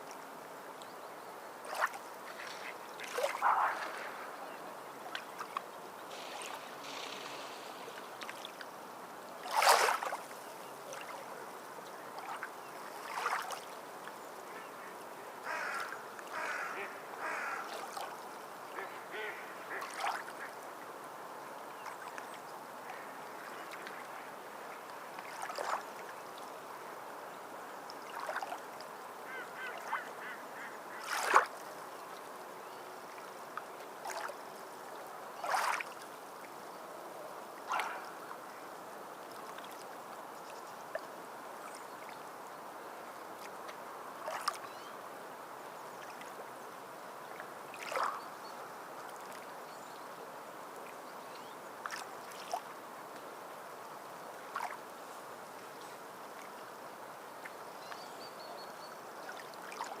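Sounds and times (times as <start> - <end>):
waterfowl calling: 2.3 - 4.7, 14.6 - 18.0, 18.7 - 20.6, 29.3 - 31.3
wash of water: 6.1 - 8.7, 9.4 - 10.3.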